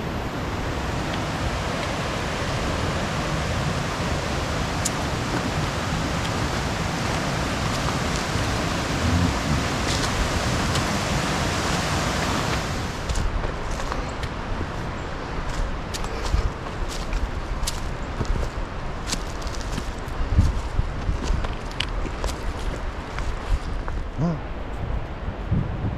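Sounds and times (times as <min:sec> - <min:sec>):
creek water flowing: 0:00.0 - 0:20.0.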